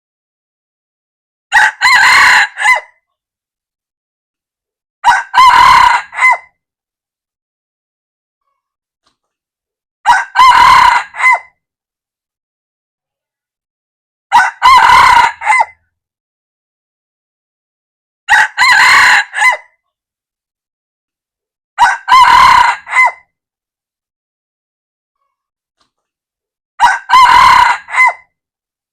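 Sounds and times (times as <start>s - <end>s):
rooster crowing: 1.5s - 2.9s, 5.0s - 6.5s, 10.0s - 11.5s, 14.3s - 15.8s, 18.3s - 19.7s, 21.8s - 23.3s, 26.8s - 28.3s.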